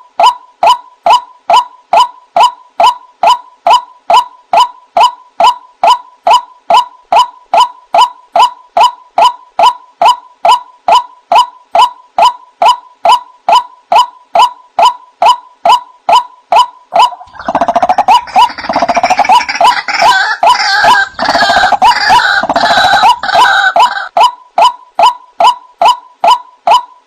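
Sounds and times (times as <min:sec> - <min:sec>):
waterhen calling wak notes: 0:16.9 - 0:24.2.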